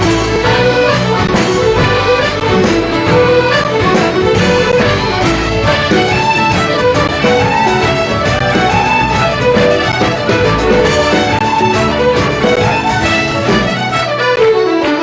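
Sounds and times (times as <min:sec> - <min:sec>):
accordion and fiddle folk tune: 0:00.0 - 0:15.0
steady beat: 0:00.0 - 0:15.0.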